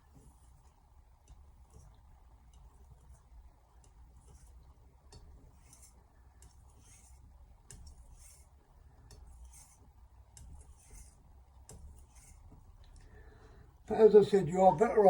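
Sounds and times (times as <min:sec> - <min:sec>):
knife swishing on whetstone: 0:09.4 - 0:09.8, 0:10.4 - 0:12.6.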